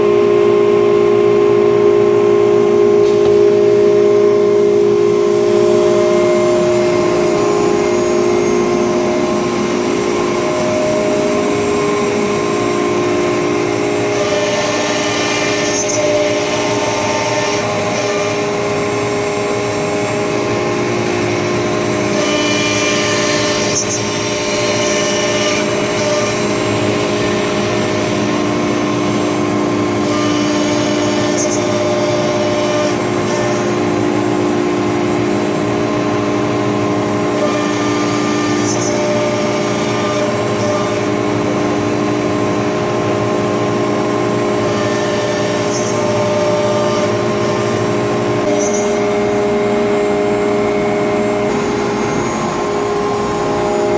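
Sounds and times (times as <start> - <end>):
router spindle whine: 0.0 - 53.9.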